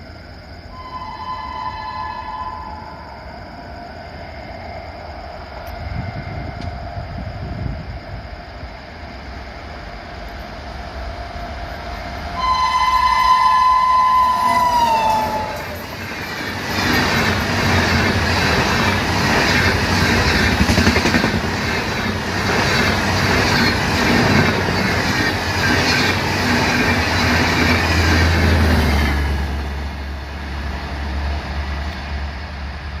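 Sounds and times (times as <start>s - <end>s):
shrill locomotive horn: 0.7s - 3.3s, 12.2s - 16.3s
train wheels rattling over rail joints: 14.4s - 32.8s.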